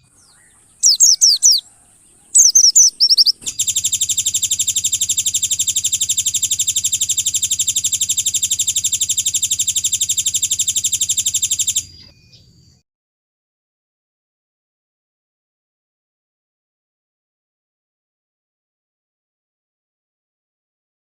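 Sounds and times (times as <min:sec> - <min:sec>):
bird chirps sweeping downward: 0:00.0 - 0:12.8
rapid bird trill: 0:00.0 - 0:12.8.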